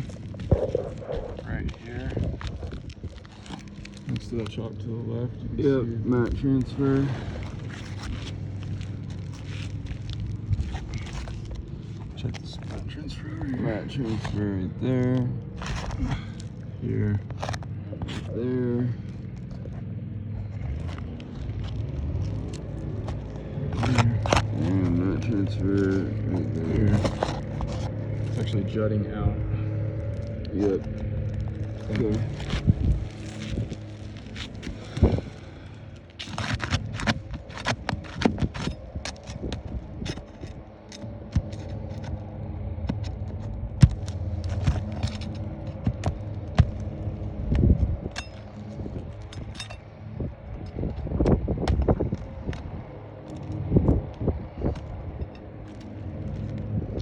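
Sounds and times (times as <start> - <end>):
steady low hum: 0.0 - 57.0
steady low rumble: 0.0 - 57.0
scrapes and clicks of roof work: 32.2 - 42.2.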